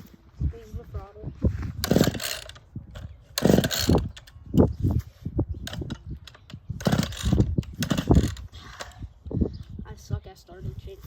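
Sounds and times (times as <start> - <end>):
chainsaw starter cord pulls: 1.8 - 4.7, 5.6 - 9.0.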